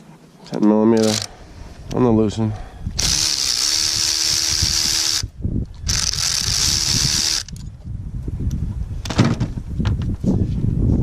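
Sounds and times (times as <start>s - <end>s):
cordless power tool spinning: 1.0s - 1.3s, 3.0s - 7.6s.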